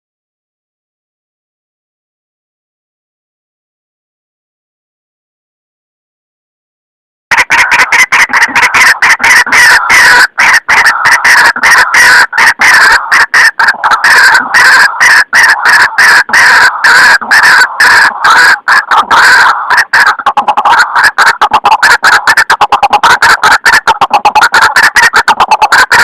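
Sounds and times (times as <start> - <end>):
waterhen calls: 7.3 - 26.0.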